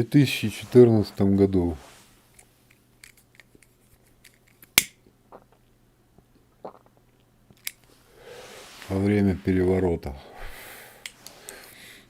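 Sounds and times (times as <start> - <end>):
sharp snap: 4.8 - 5.0.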